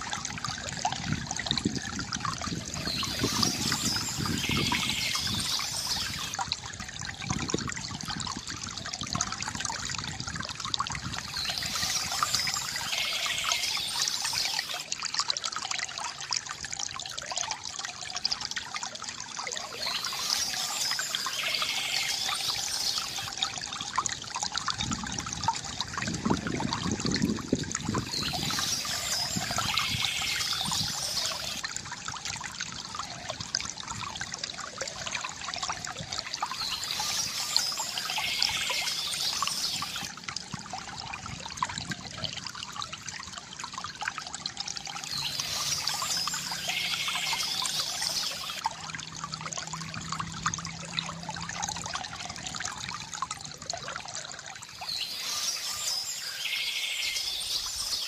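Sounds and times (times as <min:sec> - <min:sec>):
water trickling from fountain: 0:00.0 - 0:58.0
bird chirps: 0:02.8 - 0:06.3, 0:19.6 - 0:23.3, 0:36.5 - 0:40.1, 0:45.1 - 0:48.6, 0:54.8 - 0:58.0.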